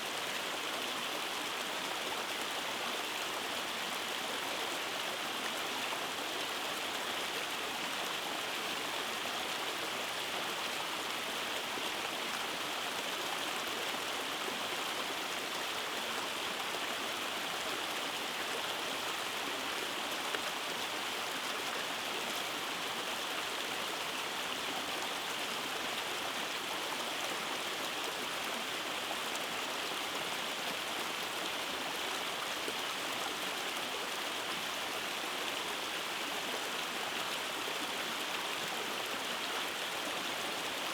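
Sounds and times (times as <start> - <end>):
stream rushing over cascades: 0.0 - 40.9.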